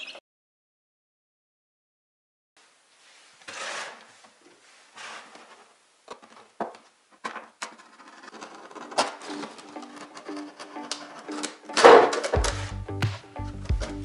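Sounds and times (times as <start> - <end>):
knife scraping plastic bottle: 3.4 - 4.2, 4.9 - 5.6, 7.2 - 12.7, 13.4 - 14.0
plastic crackling clicks: 8.8 - 12.7.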